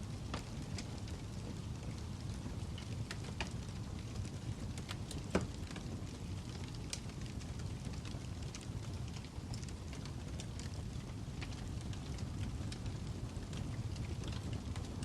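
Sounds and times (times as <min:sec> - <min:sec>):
logs crackling and popping: 0:00.0 - 0:15.0
low rumble of flames: 0:00.0 - 0:15.0.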